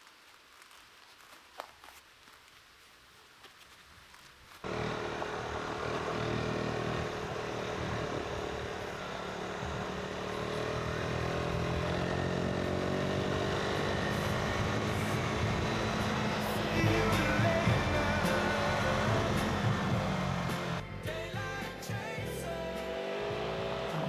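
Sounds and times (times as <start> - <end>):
motorcycle engine running: 4.6 - 24.0.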